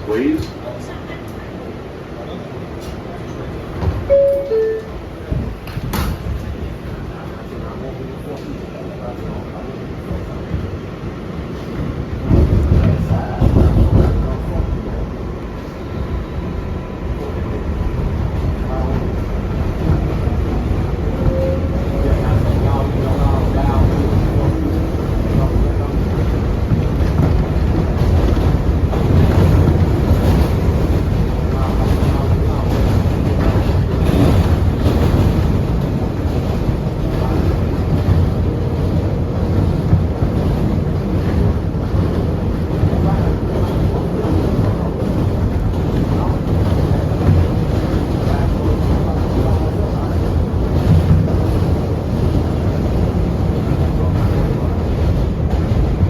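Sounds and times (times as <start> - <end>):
subway train rumble: 0.0 - 56.0.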